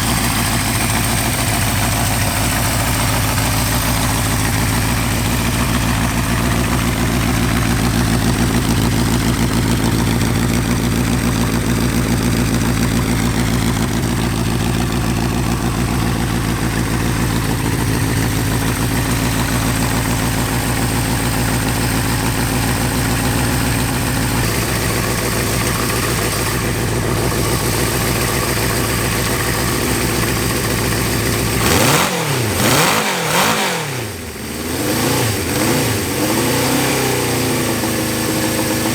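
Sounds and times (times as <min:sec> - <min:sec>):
engine revving: 0:00.0 - 0:38.9
motorcycle engine idling: 0:00.0 - 0:38.9.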